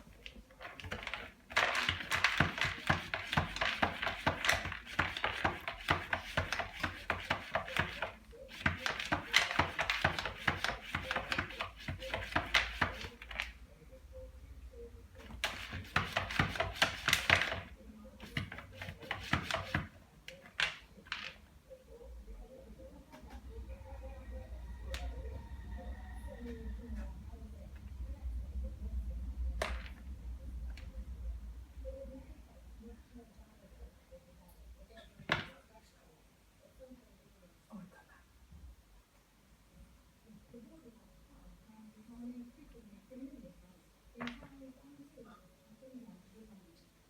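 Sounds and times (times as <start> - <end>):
cat scratching in litter: 0.0 - 13.5, 15.2 - 19.9.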